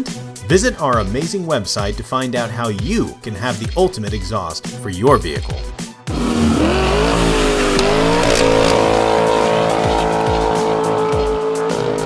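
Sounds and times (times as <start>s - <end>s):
car engine revving: 6.1s - 11.0s.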